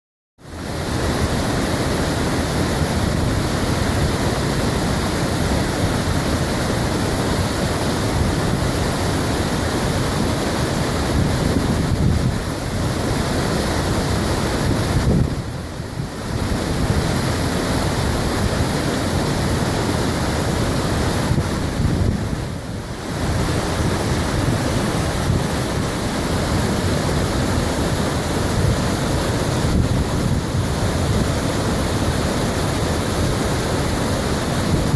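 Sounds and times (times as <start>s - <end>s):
waterfall roaring: 0.5s - 34.9s.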